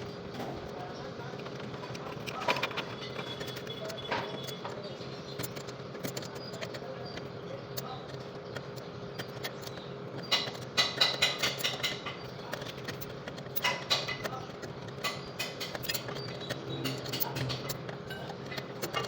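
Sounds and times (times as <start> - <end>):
steady low hum: 0.0 - 19.0
metal tools clinking on metal: 9.4 - 19.0.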